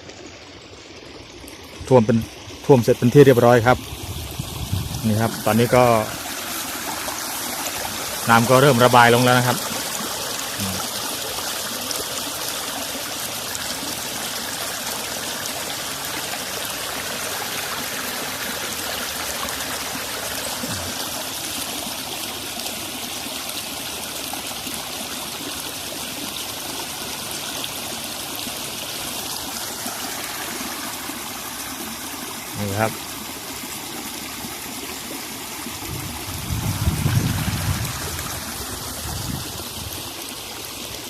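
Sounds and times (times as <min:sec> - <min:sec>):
floodwater flowing: 0:00.0 - 0:41.0.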